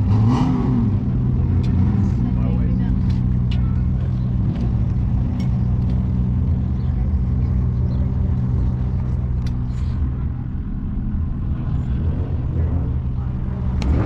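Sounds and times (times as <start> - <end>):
car engine idling: 0.8 - 14.0.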